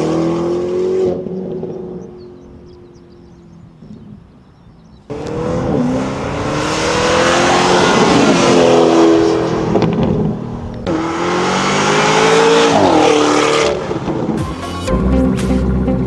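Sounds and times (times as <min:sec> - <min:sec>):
car engine accelerating: 0:05.1 - 0:16.0.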